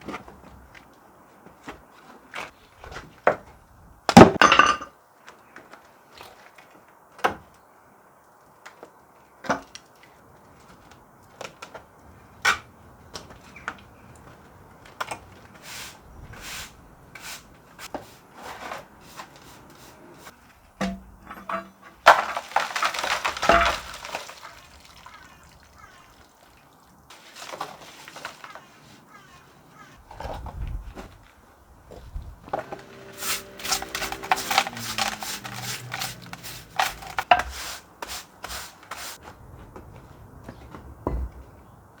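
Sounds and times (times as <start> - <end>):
clattering and scraping: 20.8 - 23.9, 32.5 - 37.6.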